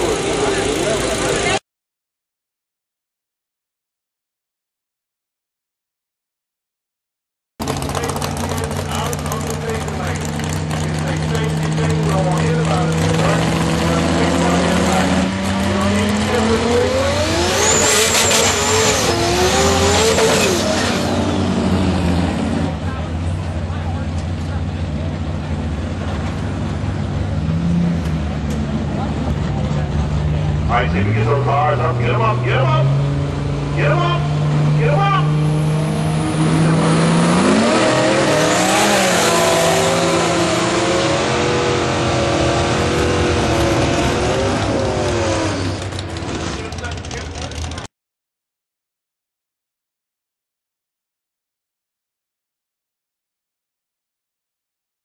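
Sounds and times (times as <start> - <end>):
high turbo whine: 7.6 - 47.8
car engine accelerating: 7.6 - 47.9.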